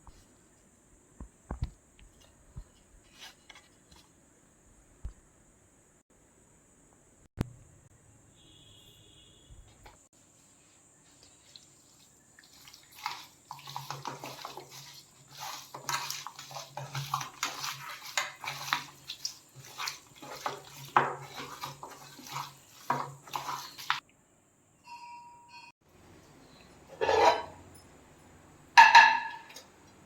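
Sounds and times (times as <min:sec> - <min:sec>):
water sloshing and splashing: 0:11.2 - 0:24.0
pieces knocking in bowl: 0:28.8 - 0:29.6.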